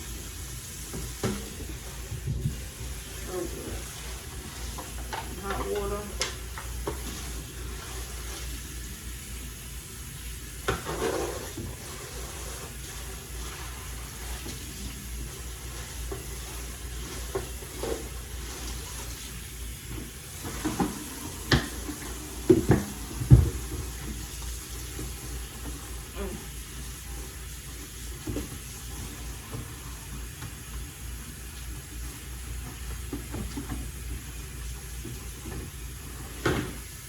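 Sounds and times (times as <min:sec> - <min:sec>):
tap water running into sink: 0:00.0 - 0:37.0
knocks and clatters in sink: 0:03.8 - 0:08.5, 0:10.6 - 0:26.3, 0:32.6 - 0:36.9.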